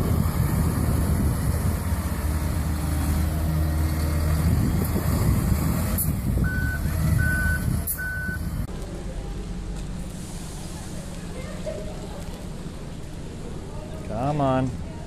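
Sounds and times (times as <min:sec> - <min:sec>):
truck engine droning: 0:00.0 - 0:14.0
reversing alarm beeps: 0:06.4 - 0:08.5.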